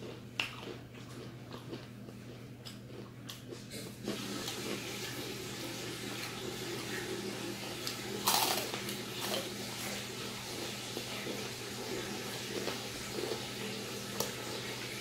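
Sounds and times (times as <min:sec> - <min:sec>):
chewing: 0:00.0 - 0:05.2, 0:07.8 - 0:14.5.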